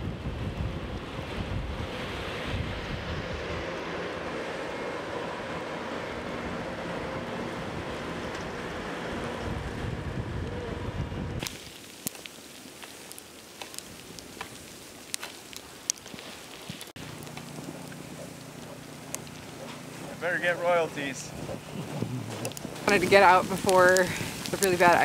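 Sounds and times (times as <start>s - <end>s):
wind buffeting microphone: 0.0s - 11.7s, 13.1s - 25.0s
sharp clicks and ticks: 16.8s - 19.8s, 21.5s - 25.0s.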